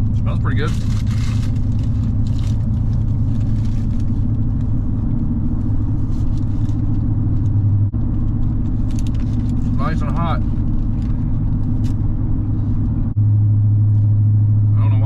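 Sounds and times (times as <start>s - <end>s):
vehicle engine humming: 0.0s - 15.0s
wrapper crinkling: 0.7s - 4.8s, 8.6s - 9.8s.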